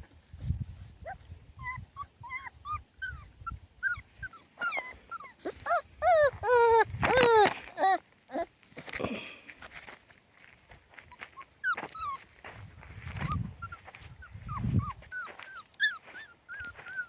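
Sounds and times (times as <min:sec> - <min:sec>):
puppies whimpering: 0:01.0 - 0:08.6, 0:11.2 - 0:12.4, 0:13.0 - 0:17.0.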